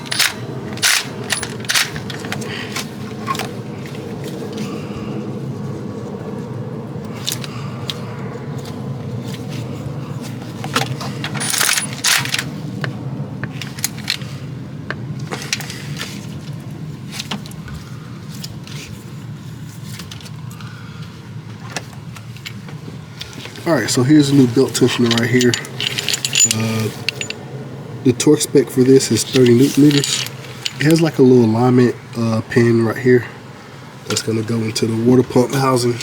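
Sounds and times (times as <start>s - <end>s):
metal tools clinking: 0.0s - 2.5s, 10.8s - 12.5s, 23.7s - 27.4s, 29.0s - 31.2s.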